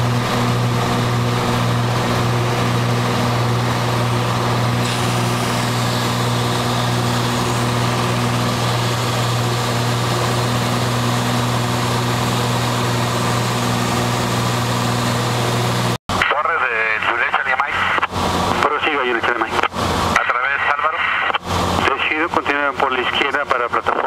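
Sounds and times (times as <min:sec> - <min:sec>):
propeller plane engine droning: 0:00.0 - 0:23.9.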